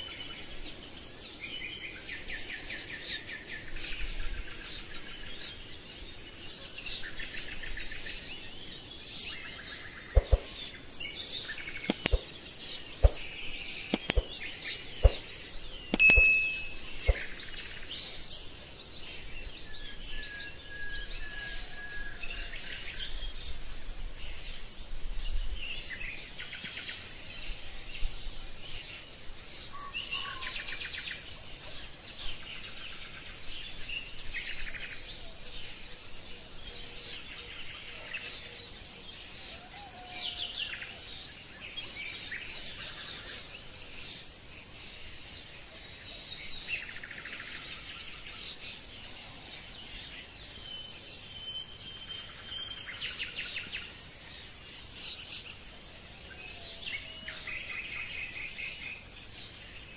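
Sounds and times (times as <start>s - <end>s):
birds chirping and singing: 0.0s - 59.9s
whistled bird notes: 9.3s - 18.3s, 19.3s - 23.4s.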